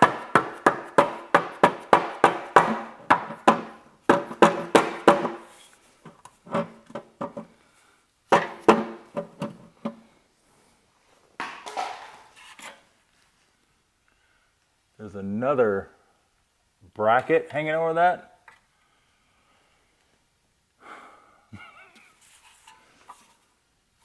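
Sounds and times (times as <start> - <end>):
hammer tapping on metal pan: 0.0 - 5.5.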